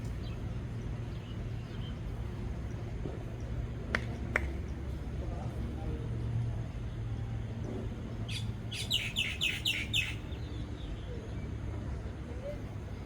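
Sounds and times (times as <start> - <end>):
bird chirping: 8.3 - 10.3.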